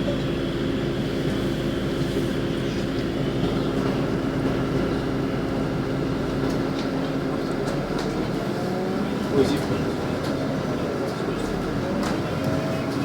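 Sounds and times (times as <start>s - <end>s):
bus engine hum: 0.0s - 13.0s
road noise: 8.0s - 13.0s.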